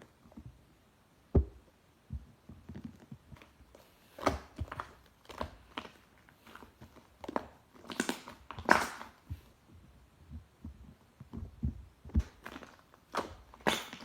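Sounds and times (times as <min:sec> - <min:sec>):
slime squeezed by hand: 0:12.2 - 0:14.0.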